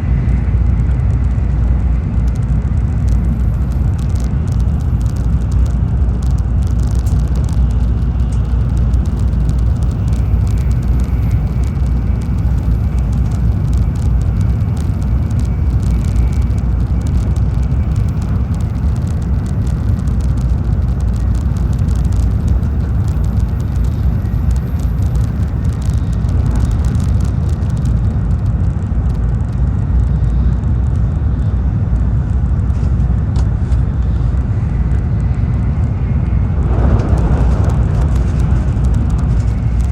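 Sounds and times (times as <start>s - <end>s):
train cabin low rumble: 0.0s - 39.9s
faint high whine: 34.6s - 39.9s.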